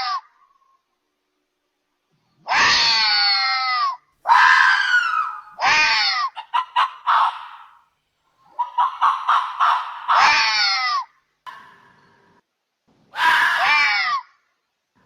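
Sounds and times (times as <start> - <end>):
animal screaming calls: 2.5 - 7.8, 8.5 - 11.1, 13.1 - 14.3.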